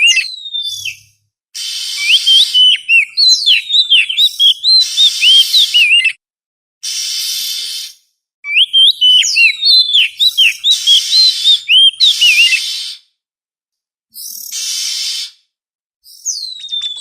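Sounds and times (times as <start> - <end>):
bird whistled song: 0.0 - 6.2, 6.9 - 13.0, 14.1 - 15.4, 16.0 - 17.0
bird harsh rasping notes: 1.6 - 6.1, 6.8 - 13.0.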